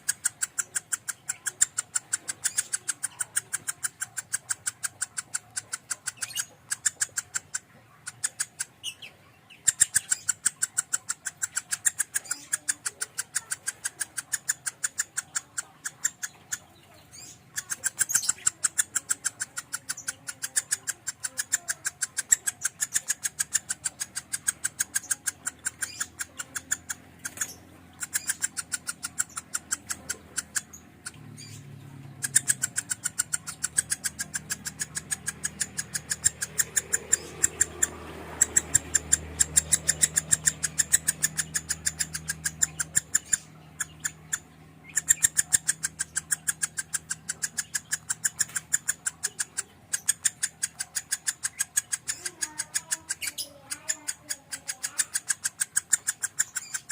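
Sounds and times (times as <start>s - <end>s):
lovebird rapid chirping song: 0.0s - 56.9s.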